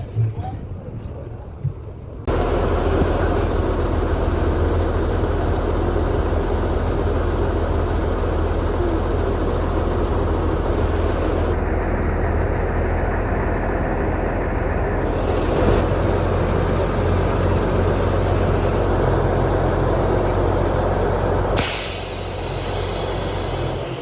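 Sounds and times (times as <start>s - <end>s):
truck engine idling: 0.0s - 24.0s
wide hiss: 21.6s - 24.0s.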